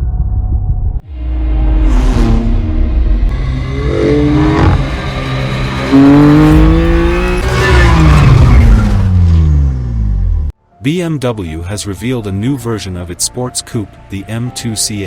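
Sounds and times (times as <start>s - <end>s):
car engine revving: 1.0s - 10.5s.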